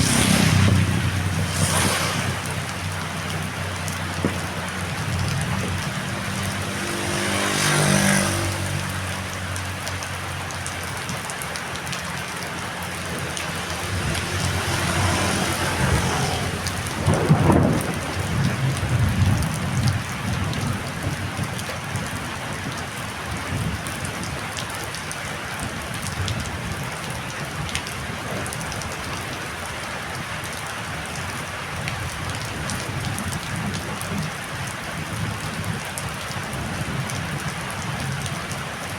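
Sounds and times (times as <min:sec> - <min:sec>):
low rumbling: 0:00.0 - 0:06.5
heavy rain falling: 0:00.0 - 0:38.9.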